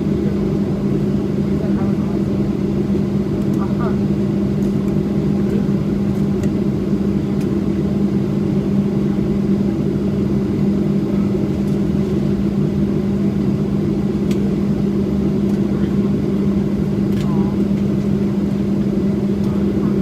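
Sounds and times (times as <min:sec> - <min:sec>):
jet engines idling: 0:00.0 - 0:20.0.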